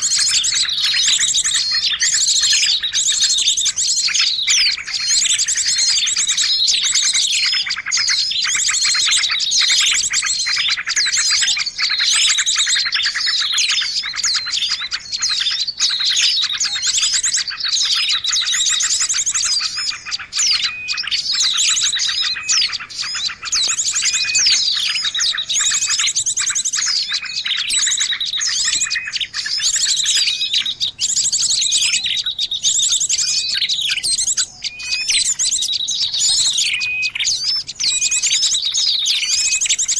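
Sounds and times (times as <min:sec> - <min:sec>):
small birds chirping and trilling: 0:00.0 - 0:39.9.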